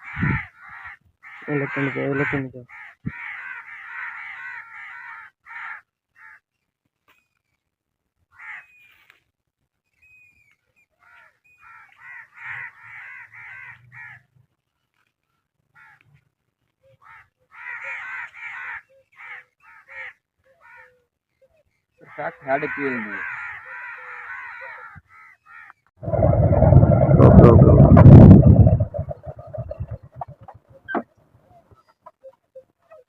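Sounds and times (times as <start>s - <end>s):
birds giving harsh calls: 16.9s - 25.9s.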